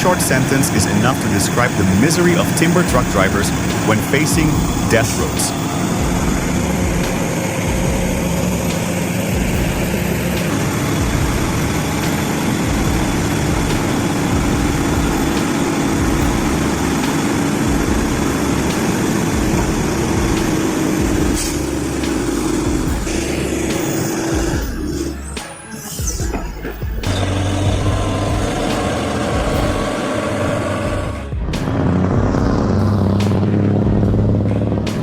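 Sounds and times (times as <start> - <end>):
truck diesel engine running: 0.0 - 35.0.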